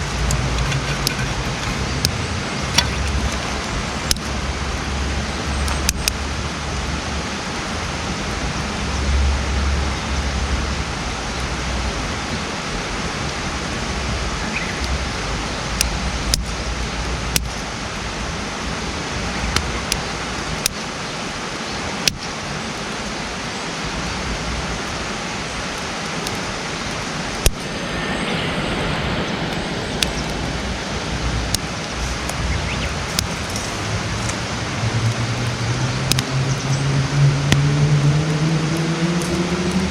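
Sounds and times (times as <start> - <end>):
wood popping and crackling: 0.0 - 4.4, 31.4 - 36.3
campfire hissing: 0.0 - 7.8, 10.9 - 36.8.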